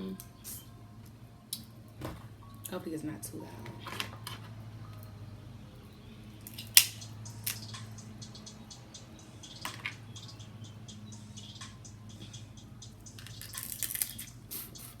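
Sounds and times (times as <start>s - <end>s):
handling clicks and crackles: 12.9s - 15.0s.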